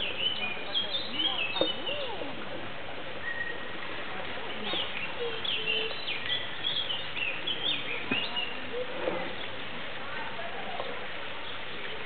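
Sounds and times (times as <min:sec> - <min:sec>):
small birds chirping: 0:00.0 - 0:02.4, 0:04.4 - 0:09.6
steady outdoor hiss: 0:00.0 - 0:12.0.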